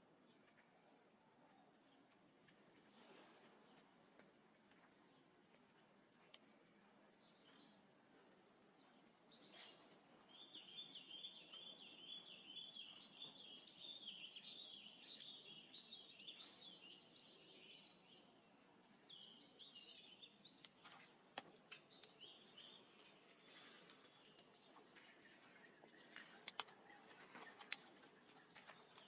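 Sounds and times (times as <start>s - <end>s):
soft clicks: 3.7s - 7.6s, 23.0s - 29.0s.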